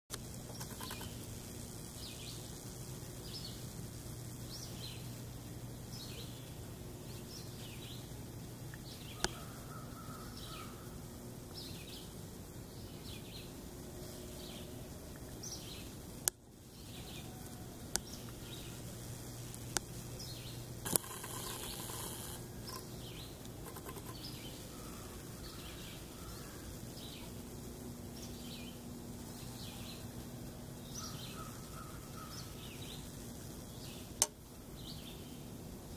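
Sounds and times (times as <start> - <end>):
sharp clicks: 0.1 - 1.2, 20.8 - 24.3
steady low hum: 0.1 - 35.9
background bird calls: 0.5 - 1.3, 4.4 - 35.9.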